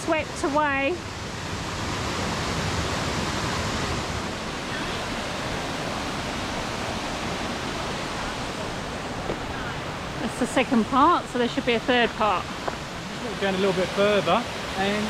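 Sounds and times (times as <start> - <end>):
waterfall rushing: 0.2 - 15.0.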